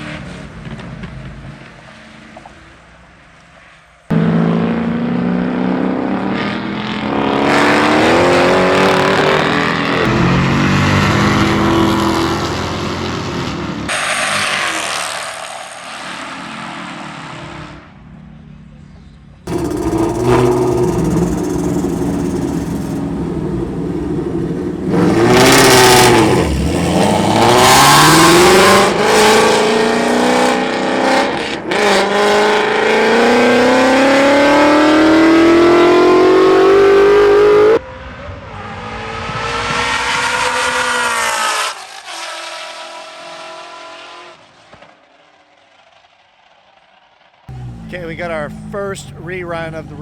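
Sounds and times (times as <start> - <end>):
car engines accelerating hard: 4.1 - 17.9, 19.5 - 44.5
quieter car engine: 17.1 - 50.0.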